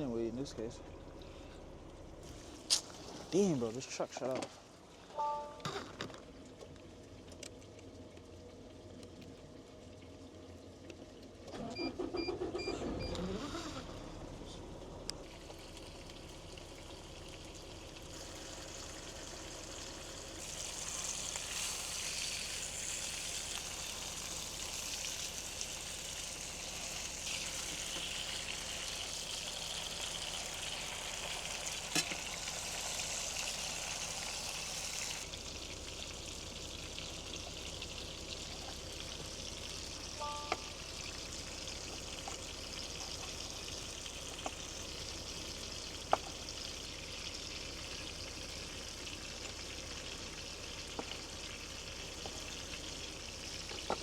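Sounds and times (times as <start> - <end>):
truck engine starting: 11.5 - 15.2
steaks sizzling in a pan: 20.0 - 35.2.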